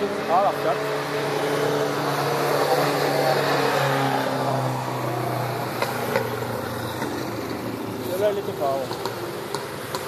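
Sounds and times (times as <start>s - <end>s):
racing car engines: 0.0s - 10.0s.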